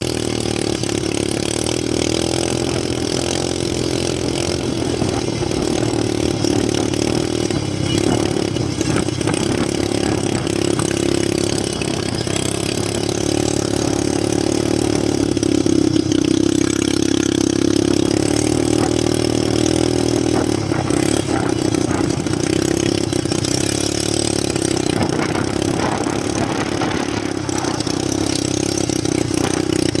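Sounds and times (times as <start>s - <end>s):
quad bike engine running: 0.0s - 30.0s.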